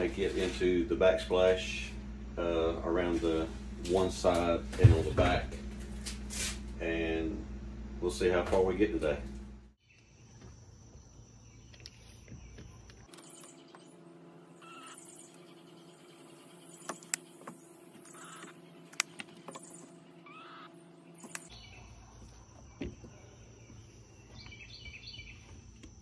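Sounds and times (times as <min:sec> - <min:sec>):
low steady hum: 0:00.0 - 0:26.0
bird calling: 0:09.8 - 0:25.6.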